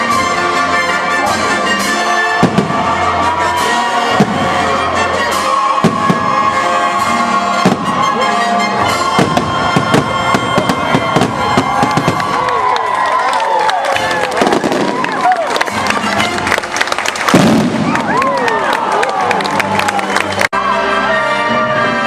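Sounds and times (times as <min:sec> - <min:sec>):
music: 0:00.0 - 0:22.0
fireworks bursting: 0:02.4 - 0:03.3, 0:05.7 - 0:06.6, 0:07.5 - 0:08.2, 0:08.8 - 0:12.7, 0:14.2 - 0:15.4, 0:17.2 - 0:18.2.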